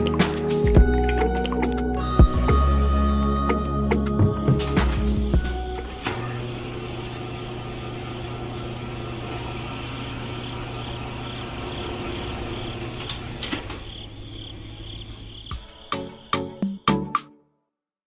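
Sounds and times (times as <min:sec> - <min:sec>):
small electric motor humming: 0:05.5 - 0:13.4.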